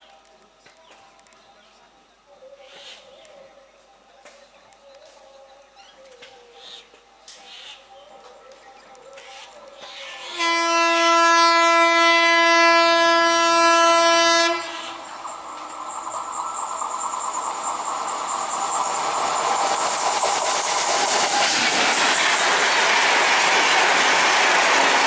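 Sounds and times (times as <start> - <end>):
train rumbling on rails: 6.2 - 25.0
train horn blast: 10.1 - 15.2.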